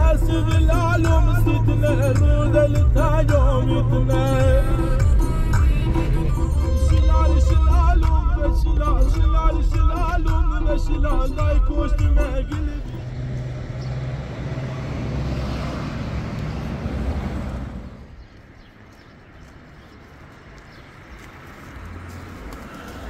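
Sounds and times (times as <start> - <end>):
low rumble: 0.0 - 15.2
motor vehicle passing: 0.0 - 23.0.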